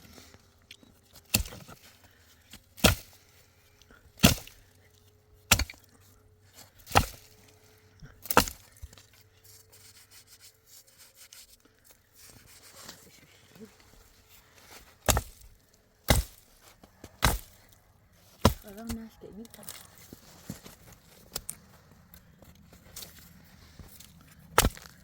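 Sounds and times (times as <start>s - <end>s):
heavy hand tool chopping: 1.3s - 1.7s, 2.8s - 3.2s, 4.2s - 4.6s, 5.5s - 5.9s, 6.9s - 7.3s, 8.2s - 8.7s, 15.0s - 15.4s, 16.1s - 16.5s, 17.2s - 17.6s, 18.4s - 19.0s, 24.6s - 24.9s.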